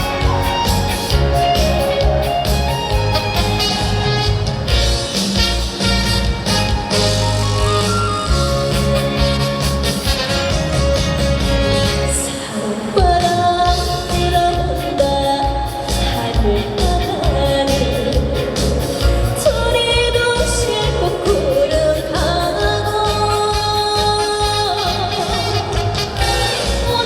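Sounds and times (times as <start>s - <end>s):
amplified accompaniment with beat: 0.0s - 12.2s
woman singing: 12.0s - 27.0s.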